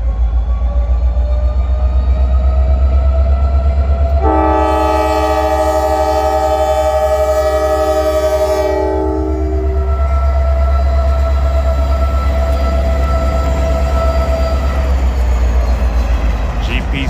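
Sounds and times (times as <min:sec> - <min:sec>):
train rumbling: 0:00.0 - 0:17.0
locomotive air horn blast: 0:04.2 - 0:10.7.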